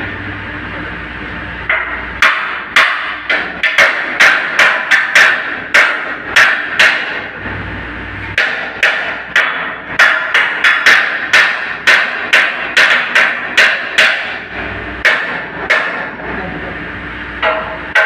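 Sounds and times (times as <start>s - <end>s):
hammer striking: 1.7s - 7.3s, 8.4s - 16.2s, 17.4s - 18.0s.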